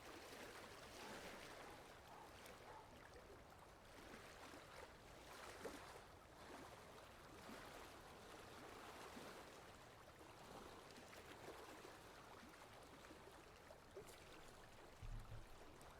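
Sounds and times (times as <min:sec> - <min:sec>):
water lapping and trickling: 0:00.0 - 0:15.9
small splashes and drips: 0:10.7 - 0:15.9.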